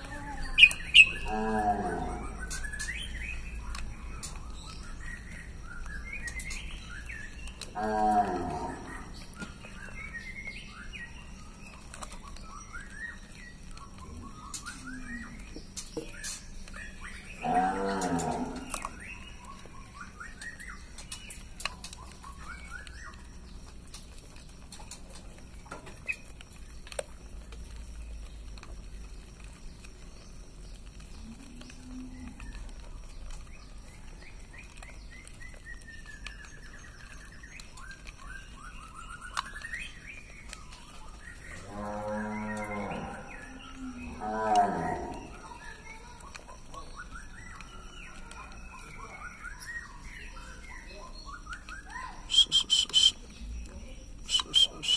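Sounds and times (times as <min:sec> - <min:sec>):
bird warbling song: 0:00.0 - 0:27.0, 0:29.4 - 0:54.9
deep drawn-out animal call: 0:00.1 - 0:02.5.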